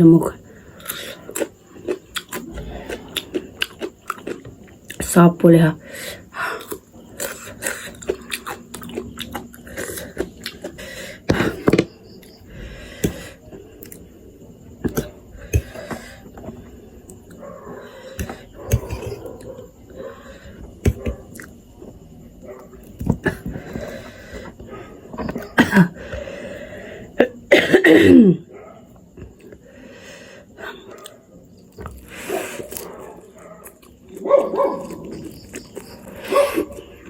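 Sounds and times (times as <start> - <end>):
woman coughing: 25.5 - 26.0, 27.2 - 28.4.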